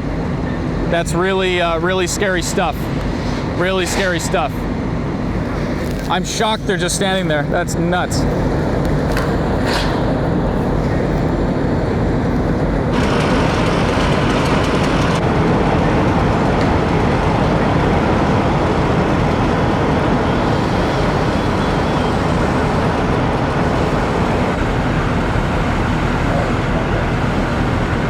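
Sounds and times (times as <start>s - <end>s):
heavy engines rumbling: 0.0s - 28.0s
hiss: 20.3s - 24.8s.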